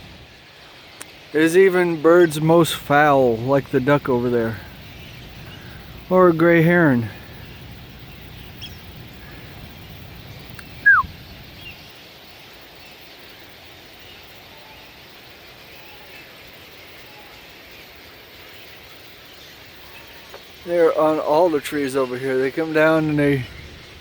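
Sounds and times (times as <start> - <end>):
outdoor background noise: 0.0 - 24.0
faint bird chirps: 2.2 - 23.9
bird call falling in pitch: 10.8 - 11.1.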